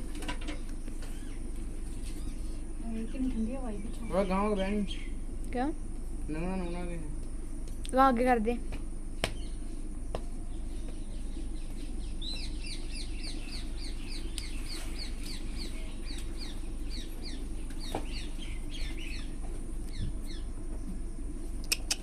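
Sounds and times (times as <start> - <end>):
steady low hum: 0.0 - 22.0
bird chirping rapidly: 3.0 - 5.2, 10.6 - 20.5.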